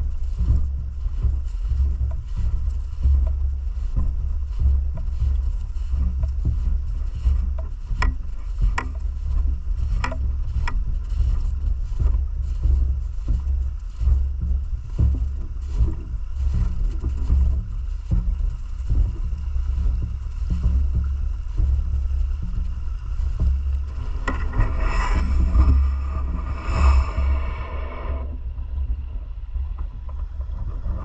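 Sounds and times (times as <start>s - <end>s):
low rumble: 0.0s - 31.0s.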